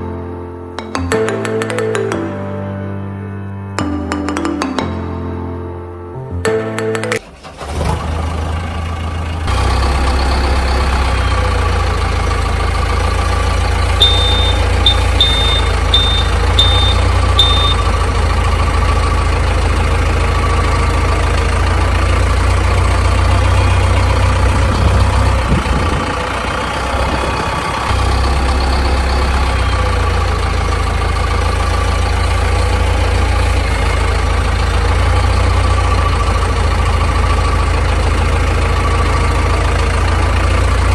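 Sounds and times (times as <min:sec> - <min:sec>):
large engine idling: 0:07.2 - 0:40.9
short high beeps: 0:14.0 - 0:18.0.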